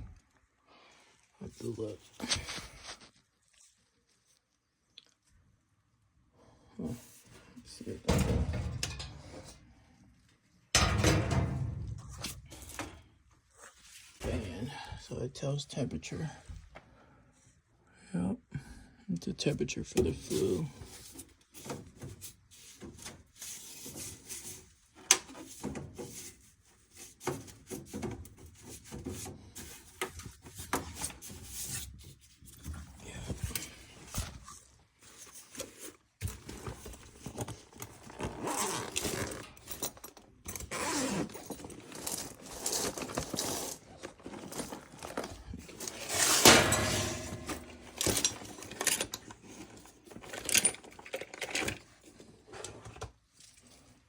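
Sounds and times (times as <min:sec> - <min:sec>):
tools clicking and rattling: 0:08.1 - 0:09.5, 0:36.3 - 0:52.0.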